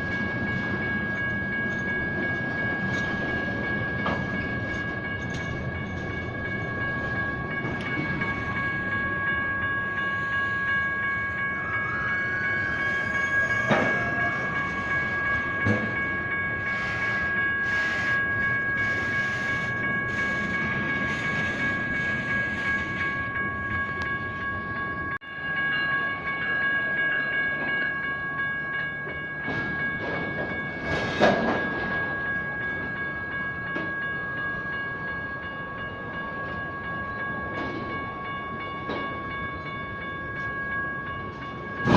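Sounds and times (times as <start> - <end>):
crossing bells ringing: 0.0 - 41.9
train wheels rumbling on rails: 0.0 - 41.9
rising squeal: 11.4 - 15.7.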